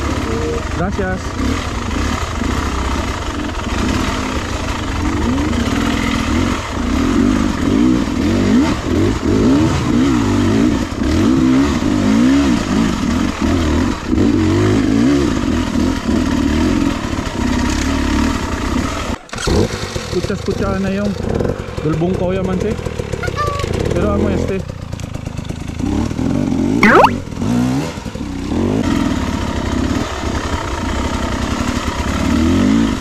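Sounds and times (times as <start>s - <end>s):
dirt bike engine revving: 0.0s - 19.7s.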